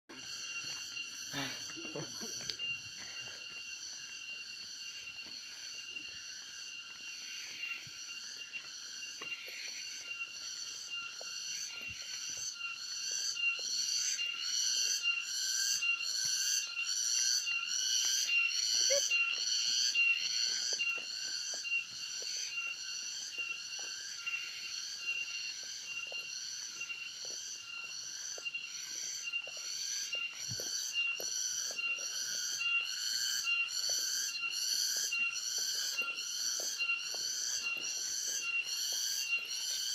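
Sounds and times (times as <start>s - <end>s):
pulsing cicada chorus: 0.1s - 39.9s.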